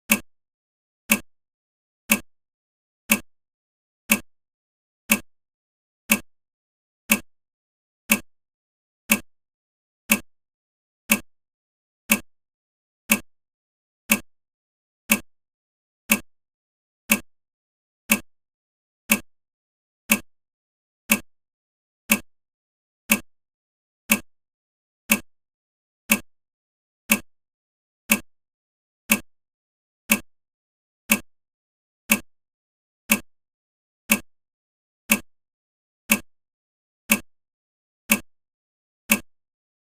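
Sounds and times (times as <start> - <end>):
sharp ticks: 3.1 - 3.3, 4.1 - 4.3, 6.1 - 6.3, 7.1 - 7.3, 8.1 - 8.3, 14.1 - 14.3, 15.1 - 15.3, 18.1 - 18.3, 19.1 - 19.3, 20.1 - 20.3, 21.1 - 21.3, 22.1 - 22.3, 23.1 - 23.3, 24.1 - 24.3, 25.1 - 25.3, 26.1 - 26.3, 27.1 - 27.3, 28.1 - 28.3, 29.1 - 29.3, 30.1 - 30.3, 31.1 - 31.3, 32.1 - 32.3, 33.1 - 33.3, 34.1 - 34.3, 35.1 - 35.3, 36.1 - 36.3, 37.1 - 37.3, 38.1 - 38.3, 39.1 - 39.3.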